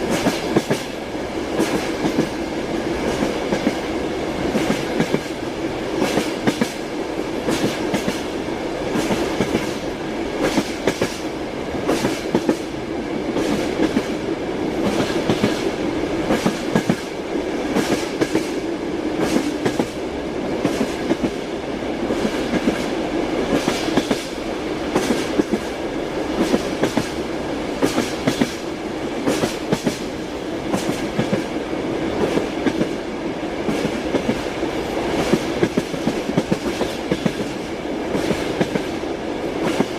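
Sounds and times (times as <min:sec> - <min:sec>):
moving train rumble: 0:00.0 - 0:39.9
train wheels clickety-clack: 0:00.0 - 0:39.9.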